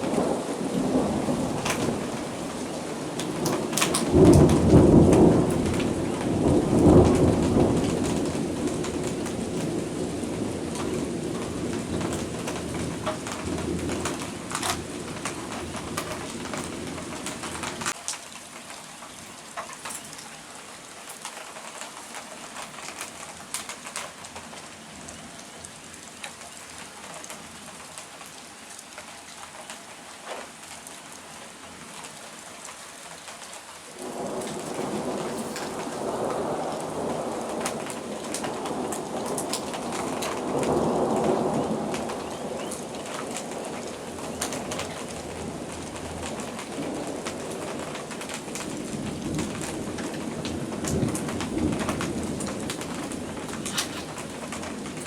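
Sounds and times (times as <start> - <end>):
low thunder rumbles: 0.0 - 18.0, 34.0 - 55.0
rain drops pattering: 0.0 - 55.0.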